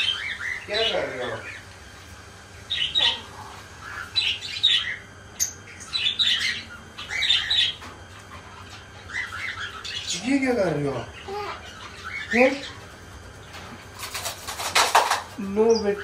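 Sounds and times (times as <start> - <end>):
caged birds chirping and squawking: 0.0 - 16.0
bird high peep: 2.6 - 7.9.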